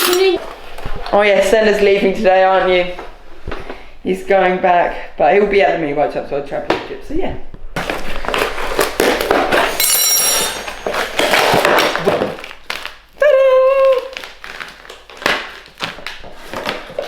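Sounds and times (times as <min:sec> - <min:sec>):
rustling and handling noise: 0:07.8 - 0:13.0.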